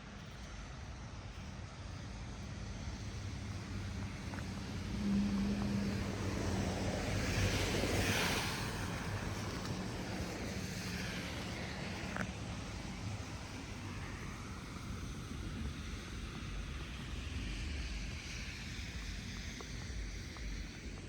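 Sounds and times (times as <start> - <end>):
low engine hum: 0.0 - 21.0
tyre hiss on slushy street: 0.0 - 21.0.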